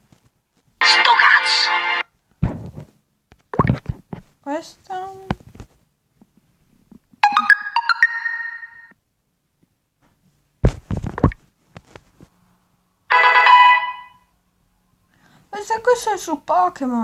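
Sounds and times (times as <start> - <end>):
phone notification chimes: 7.2 - 8.9, 13.1 - 14.1.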